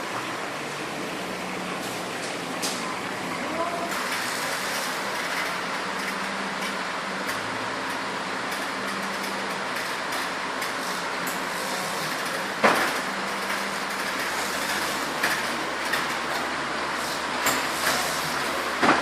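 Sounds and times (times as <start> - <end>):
machinery hissing and humming: 0.0 - 19.0.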